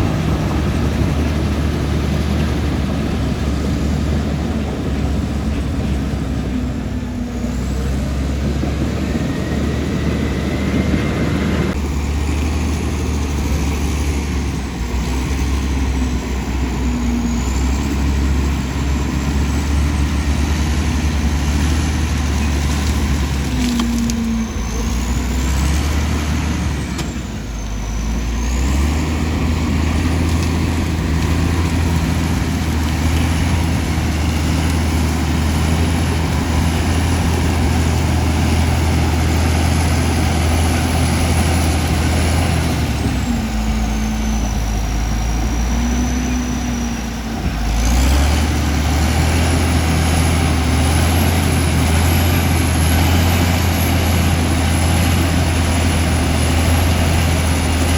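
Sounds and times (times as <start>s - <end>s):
bulldozer diesel engine running: 0.0s - 57.9s.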